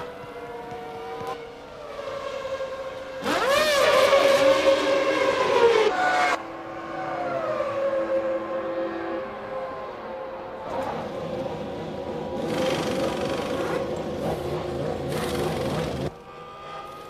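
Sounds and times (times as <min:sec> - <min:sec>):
racing car engine revving close: 0:00.9 - 0:08.2, 0:10.6 - 0:16.1.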